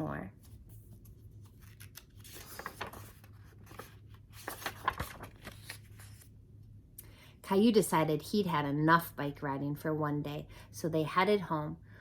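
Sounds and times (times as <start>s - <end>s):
paper page rustling and turning: 0.4s - 6.3s.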